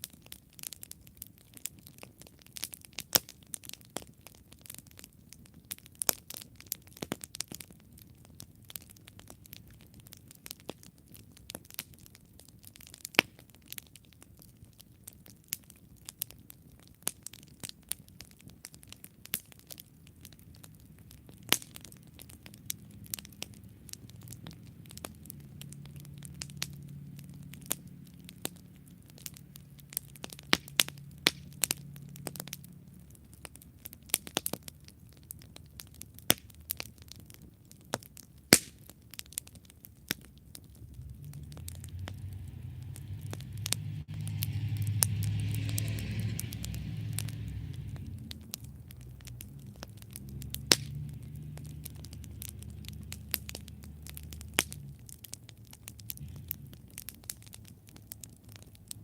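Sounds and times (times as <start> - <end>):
campfire crackling and popping: 0.0 - 59.0
low rumble: 20.5 - 37.2, 40.6 - 58.7.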